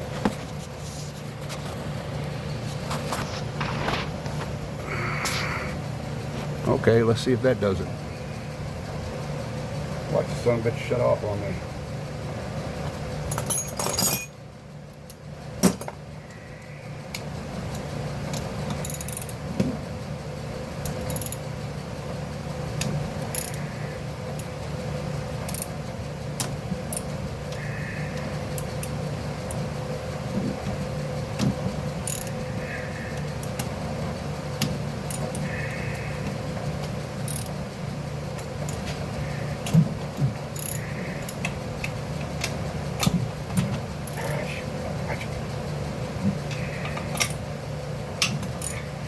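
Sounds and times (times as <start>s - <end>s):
low hum: 0.0s - 10.5s
steady low hum: 0.0s - 49.0s
metallic clinks of tools: 13.3s - 14.4s.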